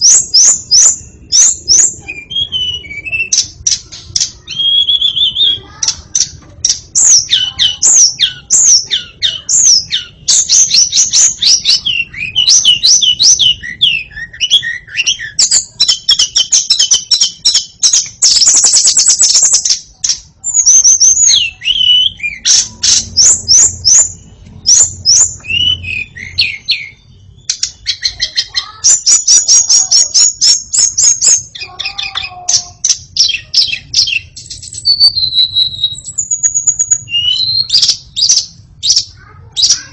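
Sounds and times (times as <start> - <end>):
bird singing whistled phrases: 0.0 - 5.7, 7.0 - 39.9.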